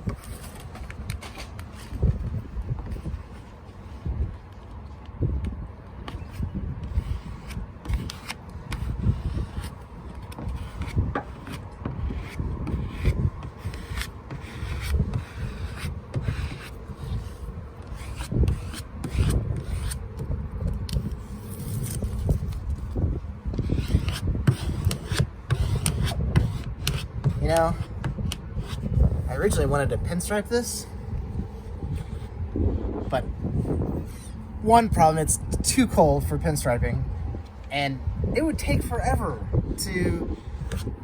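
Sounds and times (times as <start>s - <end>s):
decal rubbing and scraping: 6.0s - 34.1s, 38.4s - 41.0s.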